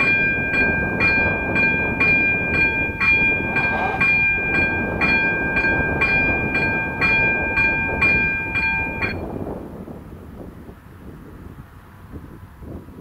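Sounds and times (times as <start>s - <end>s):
level crossing warning bell: 0.0s - 9.3s
train rumbling past: 0.0s - 9.9s.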